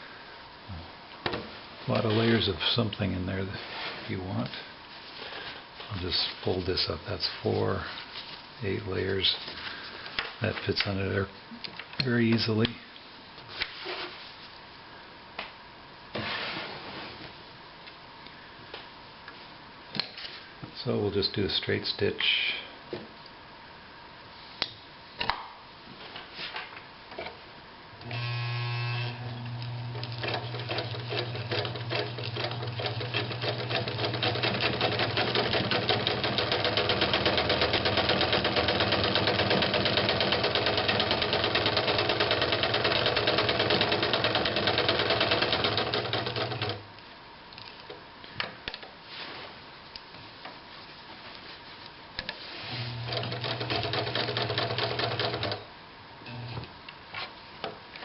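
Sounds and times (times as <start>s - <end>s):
sewing machine motor hum: 28.0s - 46.8s, 52.7s - 55.6s, 56.3s - 56.7s
sewing machine clicks: 30.0s - 46.8s, 53.1s - 55.6s
sewing machine needle clatter: 30.1s - 46.8s, 53.1s - 55.6s.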